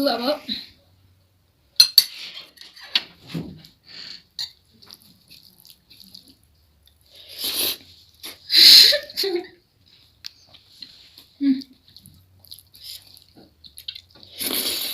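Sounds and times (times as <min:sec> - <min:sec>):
wet chewing: 0:04.4 - 0:08.4, 0:09.9 - 0:14.9.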